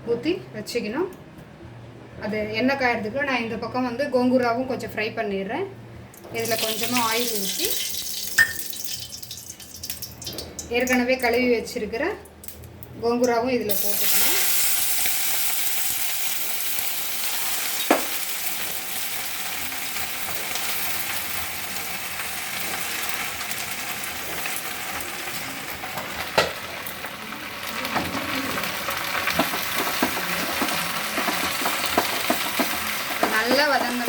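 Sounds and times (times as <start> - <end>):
leaves sizzling in hot oil: 6.4 - 10.4, 13.7 - 34.0
utensil knocking against pan: 29.3 - 34.0.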